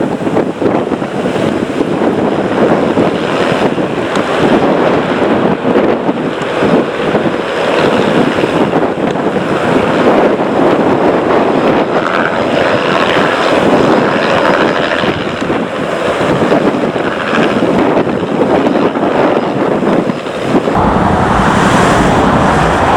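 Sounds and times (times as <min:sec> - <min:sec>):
wind buffeting microphone: 0:00.0 - 0:22.9
jet engines rushing: 0:20.7 - 0:22.9.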